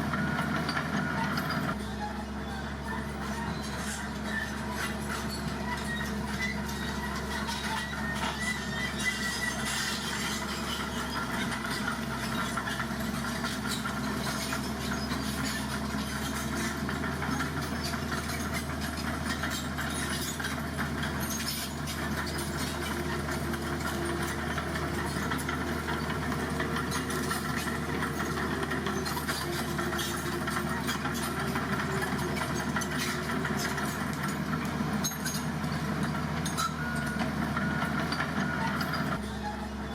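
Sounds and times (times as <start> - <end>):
heavy vehicle engine running: 0.0 - 39.9.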